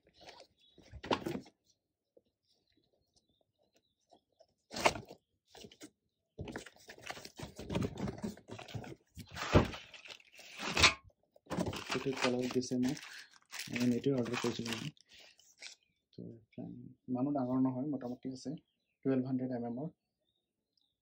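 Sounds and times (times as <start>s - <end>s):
rustling and handling noise: 0.0s - 15.9s.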